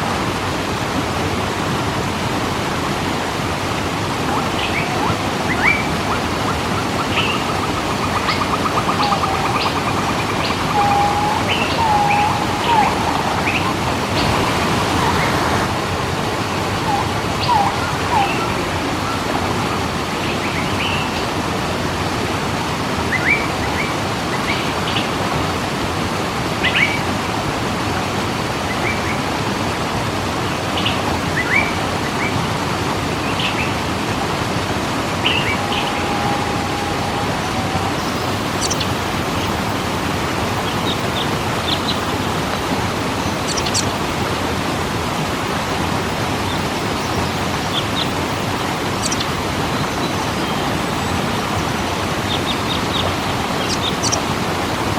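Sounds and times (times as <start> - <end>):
waterfall rushing: 0.0 - 54.9
small birds chirping: 4.3 - 21.2, 35.2 - 39.9, 40.6 - 44.2, 46.5 - 54.3.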